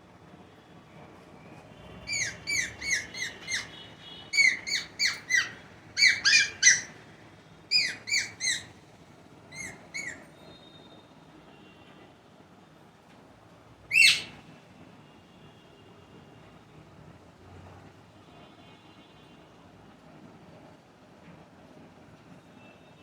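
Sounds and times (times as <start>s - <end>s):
parrot squawking: 2.1s - 7.0s, 7.7s - 8.8s, 9.5s - 10.3s, 13.9s - 14.4s.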